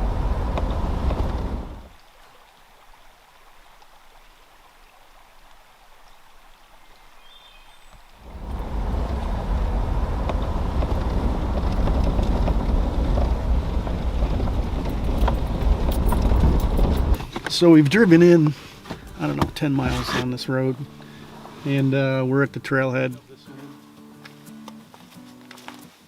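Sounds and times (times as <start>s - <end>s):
vehicle tyres rumbling on gravel: 0.0s - 1.9s, 8.2s - 18.0s, 18.9s - 20.4s.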